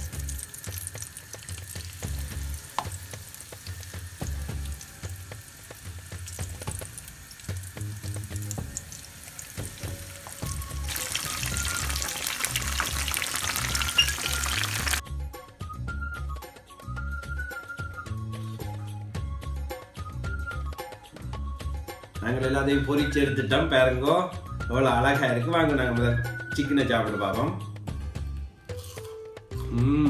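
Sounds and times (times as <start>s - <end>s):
food sizzling in hot oil: 0.0s - 15.0s
background music with low beat: 0.0s - 30.0s.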